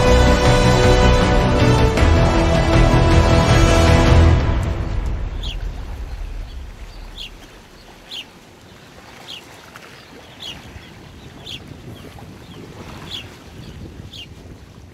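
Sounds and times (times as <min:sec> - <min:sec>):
background music: 0:00.0 - 0:07.3
bird chirping: 0:05.2 - 0:08.4
wind rumble on microphone: 0:10.1 - 0:14.9.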